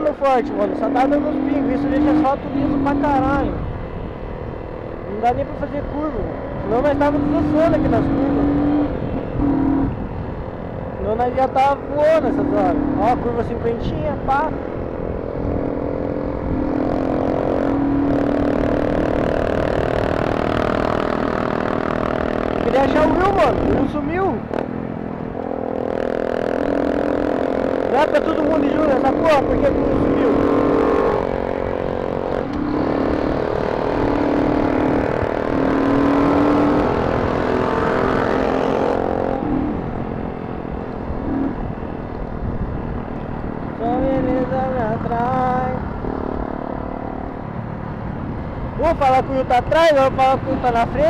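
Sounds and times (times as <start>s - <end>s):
motorcycle engine running: 0.0s - 51.0s
wind rumbling on microphone: 0.0s - 51.0s
wind rush: 6.0s - 11.1s, 29.2s - 44.8s.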